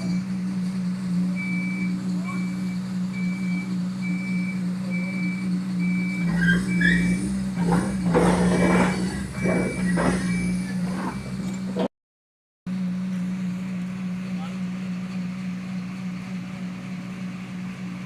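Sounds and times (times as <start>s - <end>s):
drilling rig engine running: 0.0s - 11.9s
warning alarm beeping: 1.4s - 11.3s
deep rumble: 6.0s - 11.9s
hissing clattering bursts: 6.2s - 11.8s.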